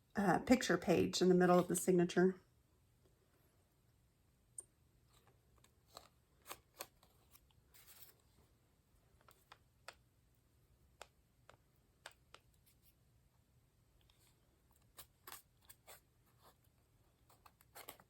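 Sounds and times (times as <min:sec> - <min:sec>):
paper rustling: 0:05.1 - 0:08.4.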